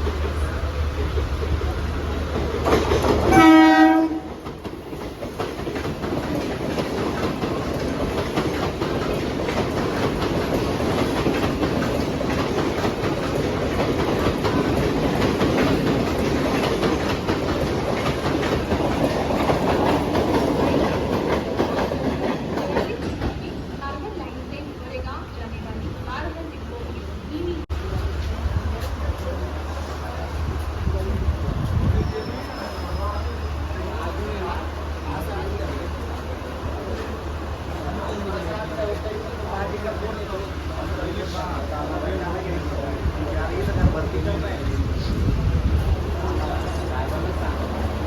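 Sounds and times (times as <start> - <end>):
train rumbling: 0.0 - 48.0
train horn blast: 3.3 - 4.4.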